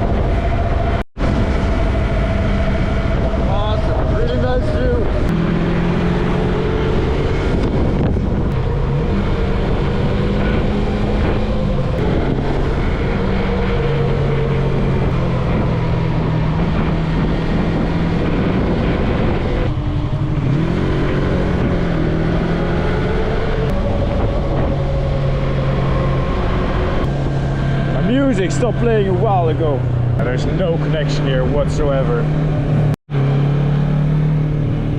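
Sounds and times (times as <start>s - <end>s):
wind rush on microphone: 0.0s - 32.9s.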